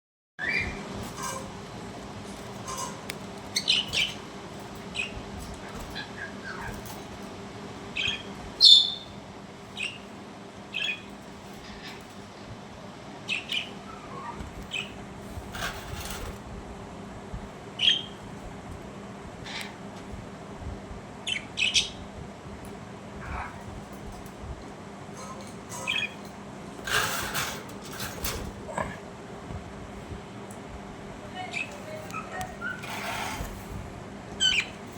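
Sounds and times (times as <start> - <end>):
faint steady hum: 0.4 - 34.9
budgerigars chirping and squawking: 2.6 - 4.3, 4.9 - 7.0, 7.9 - 10.1, 10.7 - 12.2, 13.3 - 15.0, 17.8 - 18.2, 19.4 - 19.8, 21.2 - 22.0, 25.7 - 26.3, 31.5 - 33.5, 34.4 - 34.8.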